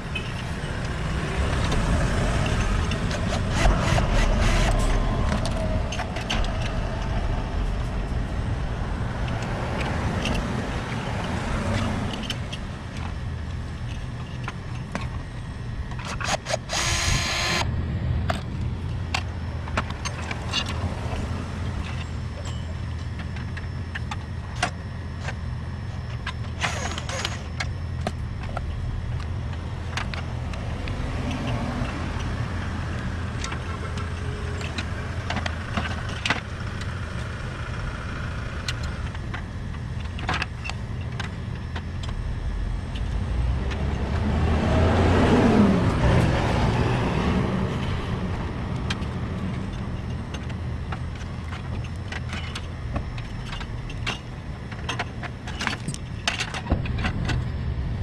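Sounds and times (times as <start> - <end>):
low machine hum: 0.0 - 58.0
tools clicking and knocking: 15.9 - 17.6.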